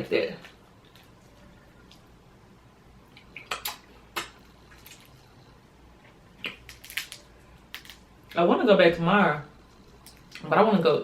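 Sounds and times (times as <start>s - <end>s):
crawfish shells cracking: 6.4s - 8.4s.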